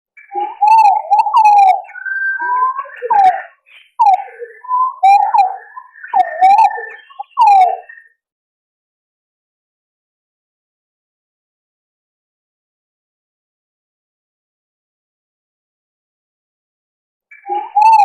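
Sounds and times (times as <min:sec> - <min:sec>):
pigeon whistled calls: 0:00.2 - 0:08.1, 0:17.3 - 0:18.0.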